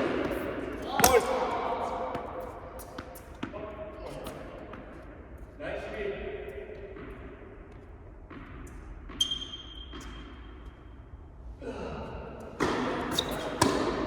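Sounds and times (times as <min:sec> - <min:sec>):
indoor tennis hall background: 0:00.0 - 0:14.0
tennis ball strike: 0:12.6 - 0:14.0.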